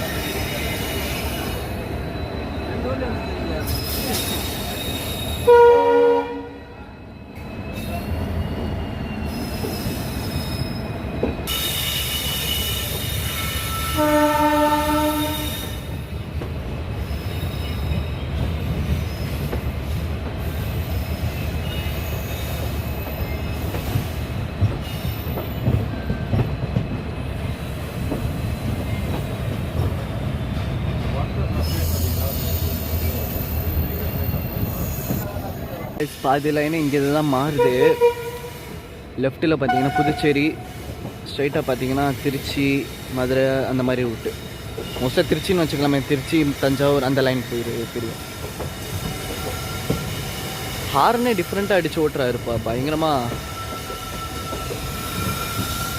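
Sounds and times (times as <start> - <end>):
train wheels rumbling on track: 0.0 - 55.9
locomotive horn blasts: 5.4 - 6.6, 13.9 - 15.7, 37.5 - 38.6, 39.7 - 40.6.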